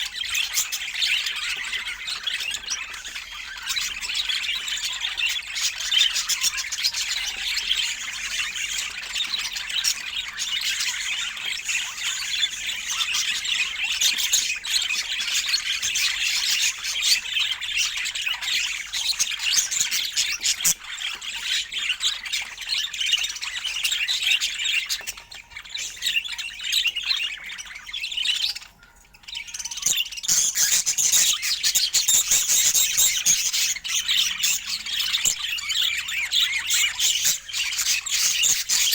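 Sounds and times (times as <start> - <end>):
budgerigars chirping and squawking: 0.0 - 38.9.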